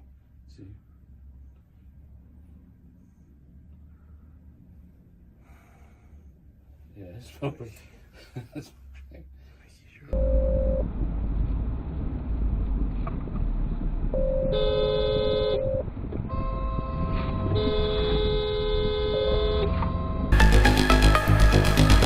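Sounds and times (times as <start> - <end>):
road and engine rumble: 0.0 - 22.0
car horns honking: 14.2 - 20.3.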